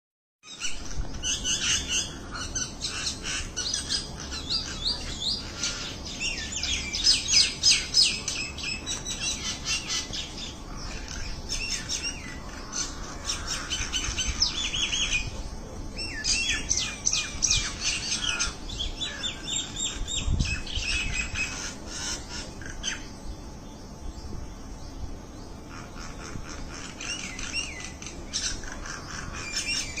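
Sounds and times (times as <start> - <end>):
small birds chirping: 0.4 - 30.0.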